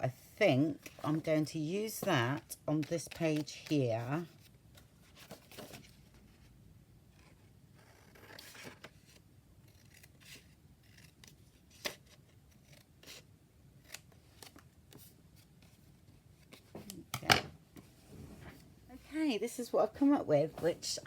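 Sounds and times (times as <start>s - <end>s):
paper rustle: 0.8s - 6.2s.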